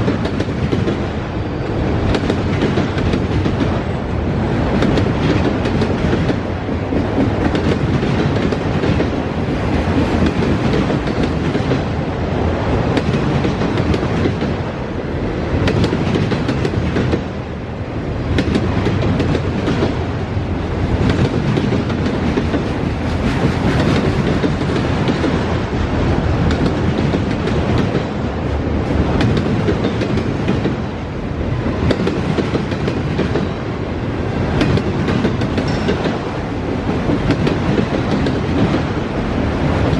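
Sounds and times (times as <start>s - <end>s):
freight train wheels rumbling: 0.0s - 39.9s
wheels clicking over rail joints: 28.9s - 30.9s, 34.5s - 39.0s.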